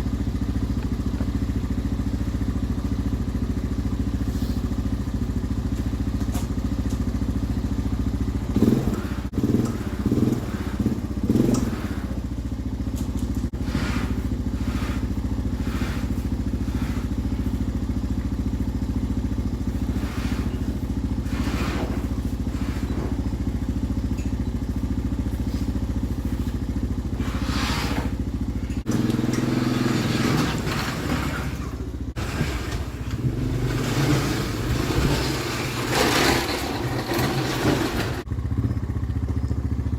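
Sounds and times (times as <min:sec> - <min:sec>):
snowmobile engine running: 0:08.5 - 0:12.2, 0:13.2 - 0:17.6, 0:27.1 - 0:38.2.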